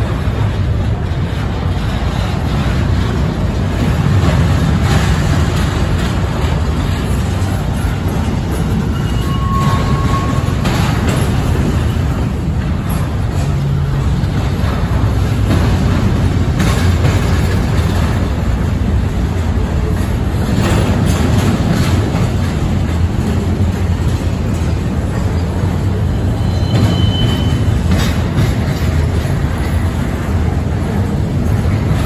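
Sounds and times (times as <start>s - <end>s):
freight train wheels rumbling: 0.0s - 32.0s
wheel clacks: 0.0s - 32.0s
high wheel squeal: 7.8s - 12.2s, 25.1s - 28.0s.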